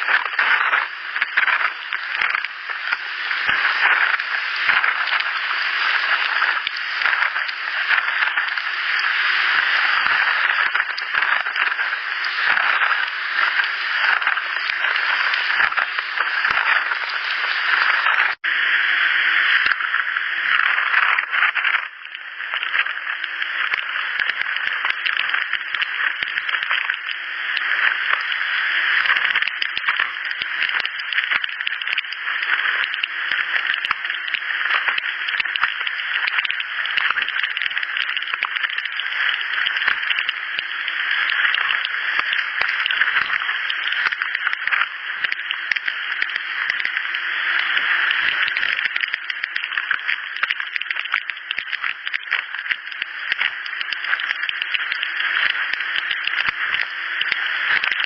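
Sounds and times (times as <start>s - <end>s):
insect buzz with crackle: 0.0s - 18.5s, 19.6s - 58.0s.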